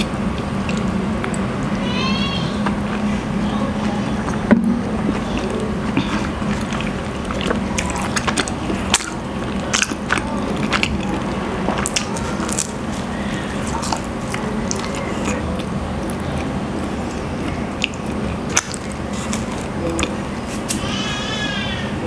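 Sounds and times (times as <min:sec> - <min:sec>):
person chewing bread: 0:00.0 - 0:01.8, 0:02.5 - 0:21.2.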